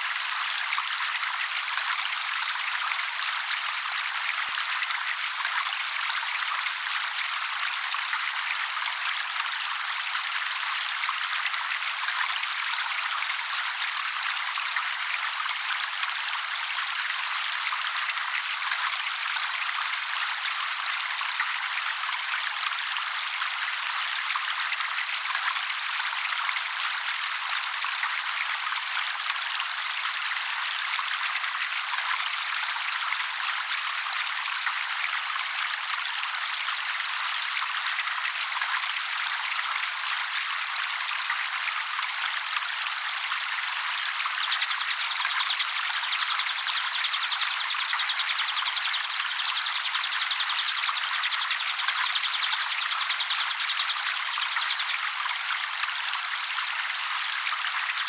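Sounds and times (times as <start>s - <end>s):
trickling water: 31.4s - 58.0s.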